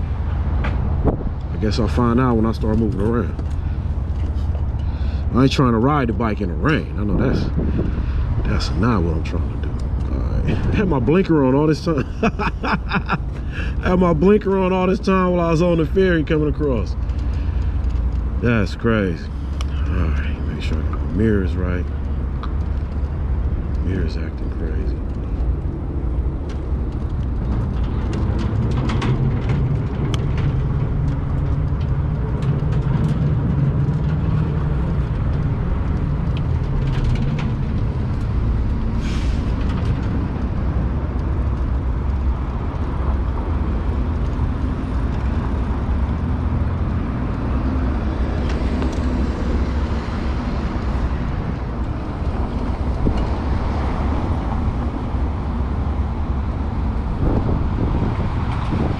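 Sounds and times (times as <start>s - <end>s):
wind noise: 0.0s - 15.3s, 19.2s - 58.9s
vehicle rumble: 0.0s - 58.9s.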